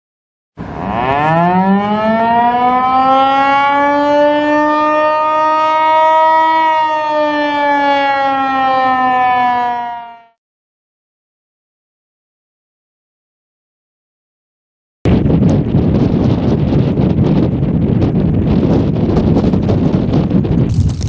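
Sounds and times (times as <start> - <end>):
warning siren wailing: 0.6 - 10.4.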